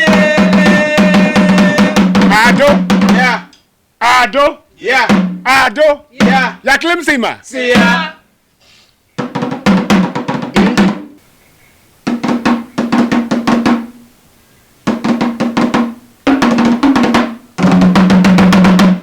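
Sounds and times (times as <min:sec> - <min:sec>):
drumming in rapid runs: 0:00.0 - 0:03.4, 0:04.9 - 0:06.7, 0:07.6 - 0:08.1, 0:09.2 - 0:11.2, 0:12.1 - 0:14.0, 0:14.9 - 0:19.0.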